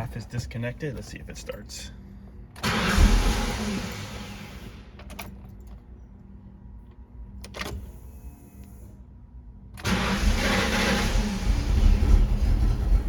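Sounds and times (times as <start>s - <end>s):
faint steady hum: 0.0s - 2.6s
car engine starting and stalling: 2.5s - 5.9s, 9.8s - 13.0s.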